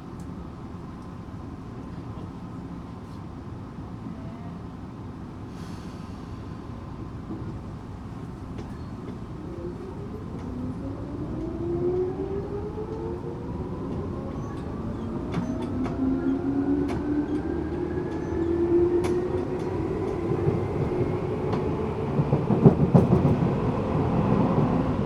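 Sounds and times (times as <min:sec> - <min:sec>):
train wheels rumbling on rails: 0:05.1 - 0:25.0.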